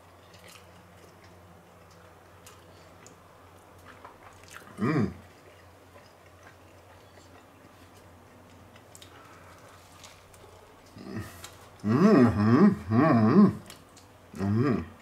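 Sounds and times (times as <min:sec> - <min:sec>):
person chewing: 0:00.0 - 0:12.4, 0:13.4 - 0:15.0
voice humming: 0:04.7 - 0:05.2, 0:11.0 - 0:13.7, 0:14.3 - 0:15.0.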